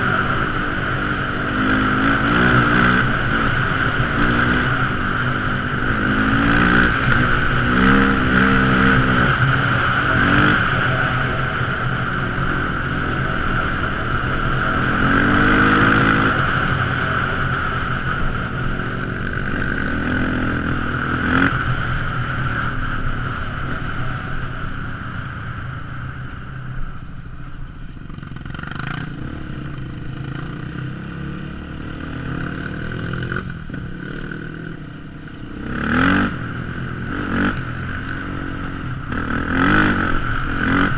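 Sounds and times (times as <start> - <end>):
quad engine revving: 0.0 - 17.7, 35.5 - 40.9.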